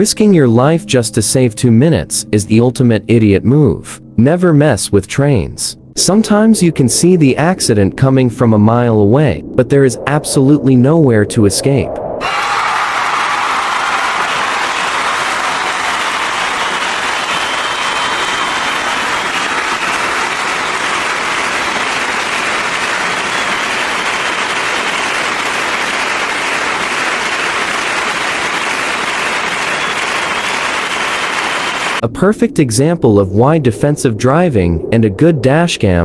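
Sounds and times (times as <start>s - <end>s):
steady driving hiss: 19.1s - 32.0s.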